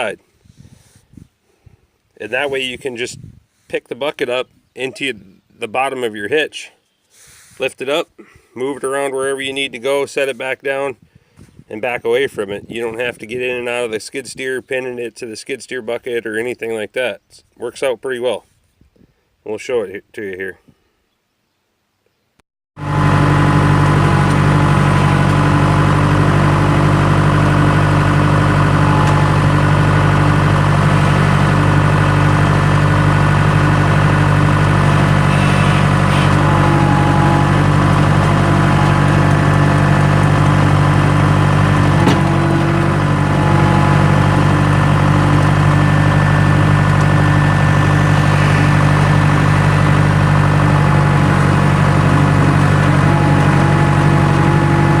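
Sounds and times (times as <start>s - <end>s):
skid steer engine running: 22.8s - 55.0s.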